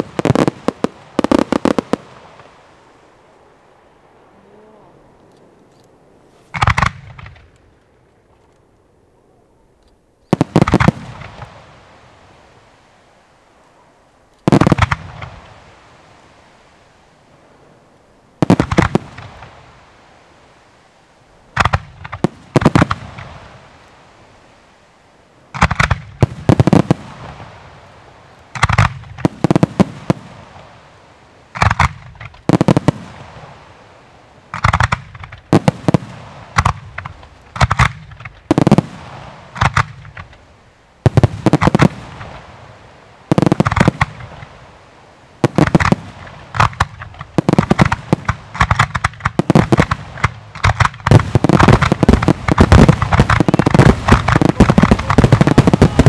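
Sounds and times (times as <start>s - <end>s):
firework bangs: 0.0s - 2.7s, 6.5s - 7.7s, 10.3s - 12.4s, 14.4s - 16.0s, 18.4s - 20.1s, 21.5s - 23.9s, 25.5s - 56.0s
fireworks crackling: 0.0s - 9.4s, 10.2s - 56.0s.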